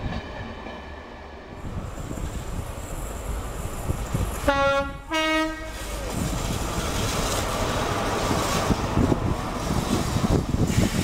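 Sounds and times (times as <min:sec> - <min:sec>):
train coaches rumbling on rails: 0:00.0 - 0:11.0
two-tone train horn: 0:04.4 - 0:05.9.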